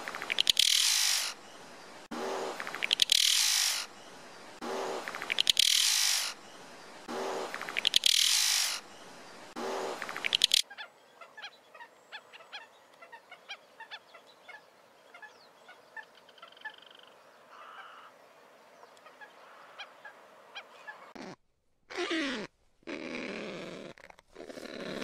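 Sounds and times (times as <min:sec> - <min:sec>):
faint background hiss: 0:00.0 - 0:21.1.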